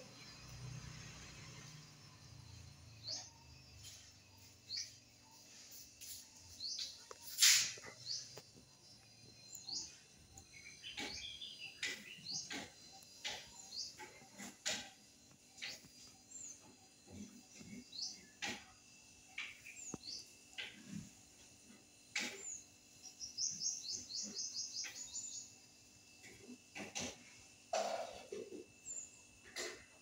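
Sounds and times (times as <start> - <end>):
small bird chirping: 0.0 - 26.8.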